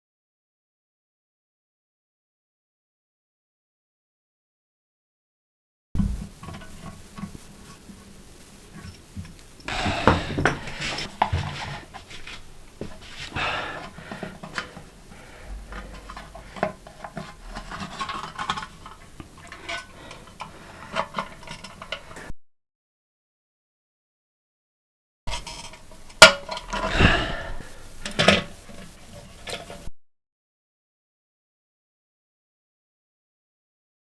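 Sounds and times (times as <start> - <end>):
hard parts clinking and scraping: 6.0 - 22.3, 25.3 - 29.9.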